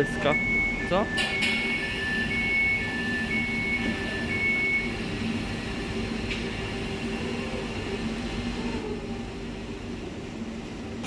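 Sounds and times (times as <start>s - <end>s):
high beep: 0.0s - 5.0s
train equipment humming: 0.0s - 11.0s.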